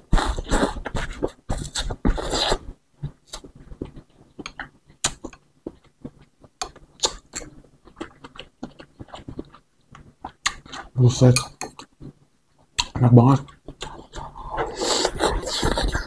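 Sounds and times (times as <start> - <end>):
person chewing with mouth clicks: 0.1 - 11.0, 11.6 - 16.0
noodle slurp: 0.2 - 2.6, 14.2 - 16.0.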